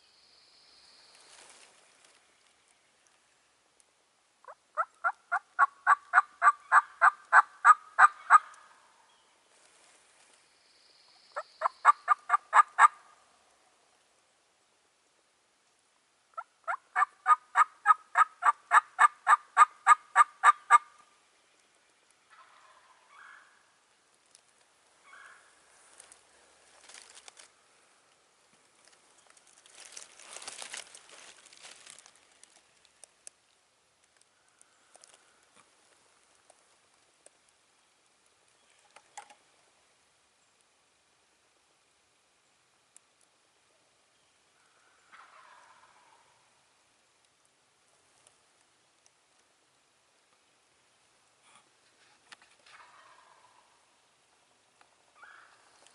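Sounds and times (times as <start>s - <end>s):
soft rustle: 0.9s - 4.0s, 9.3s - 10.8s, 24.0s - 39.9s, 51.1s - 53.6s
wild turkey yelping: 4.4s - 8.8s, 11.4s - 13.2s, 16.4s - 21.0s, 22.3s - 23.6s, 25.0s - 25.5s, 44.6s - 46.4s, 52.7s - 53.8s, 55.2s - 55.7s.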